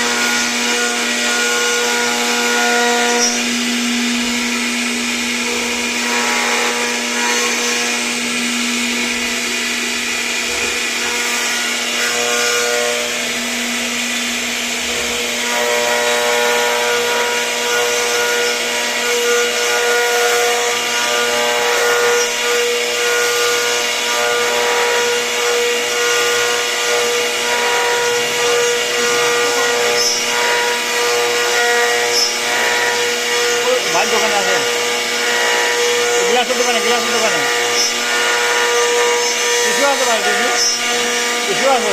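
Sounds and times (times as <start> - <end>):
router spindle whine: 0.0 - 41.9
cutting noise: 14.9 - 41.9.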